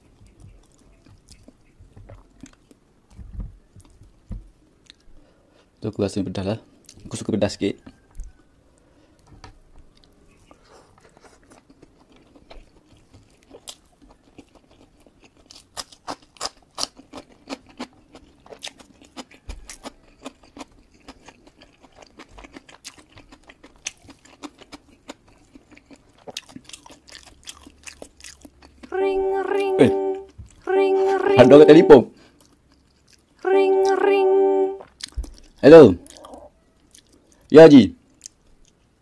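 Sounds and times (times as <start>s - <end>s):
chewing with small clicks: 0.0s - 2.8s, 4.8s - 5.1s, 7.8s - 28.9s, 32.2s - 33.4s, 34.8s - 38.9s.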